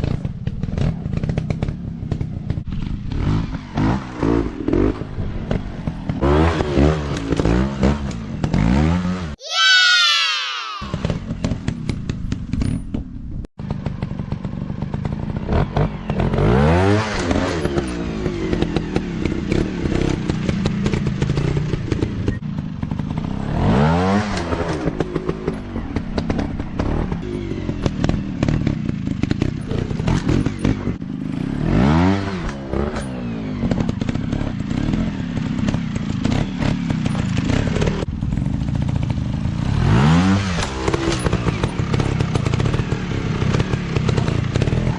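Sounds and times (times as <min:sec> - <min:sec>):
dirt bike engine revving: 0:02.8 - 0:11.6, 0:15.3 - 0:38.0, 0:38.6 - 0:44.9.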